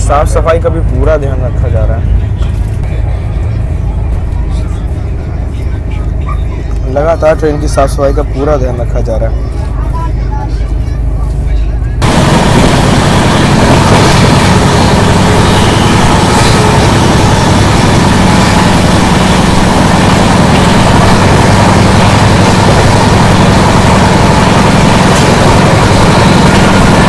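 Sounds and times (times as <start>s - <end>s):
train wind and wheels rushing: 0.0s - 27.0s
low hum: 9.4s - 27.0s.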